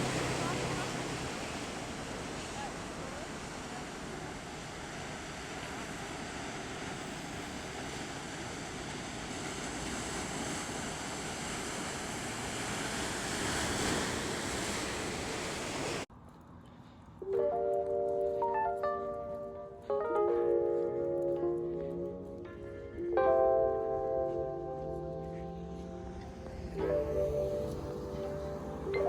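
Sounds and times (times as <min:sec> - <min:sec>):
ocean surf breaking waves: 0:00.0 - 0:16.1, 0:25.2 - 0:29.0.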